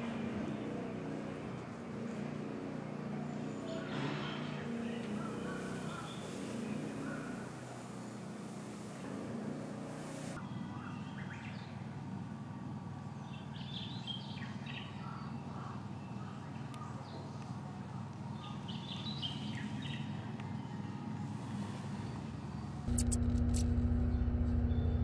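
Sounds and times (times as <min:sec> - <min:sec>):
steady low hum: 0:22.8 - 0:25.0.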